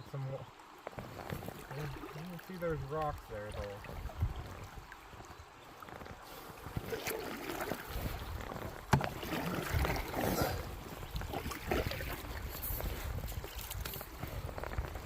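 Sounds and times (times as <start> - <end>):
fast river water: 0.0 - 15.0
paddles splashing in water: 0.0 - 15.0
knocks against canoe hull: 8.9 - 9.4.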